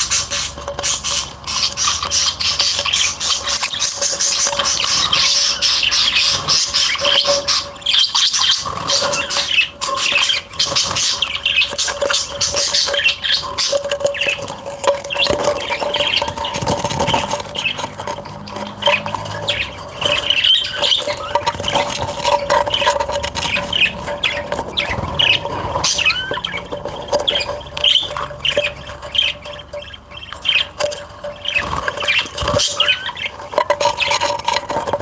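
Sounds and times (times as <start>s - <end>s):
cage birds chirping: 0.0s - 35.0s
light clicks and scratching: 0.0s - 35.0s.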